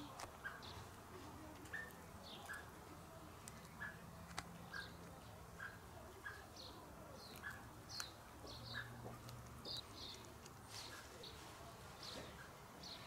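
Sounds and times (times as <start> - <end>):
small bird chirping: 0.0 - 0.9, 1.5 - 13.0
cat chewing crunching clicks: 1.5 - 6.5, 7.2 - 10.7.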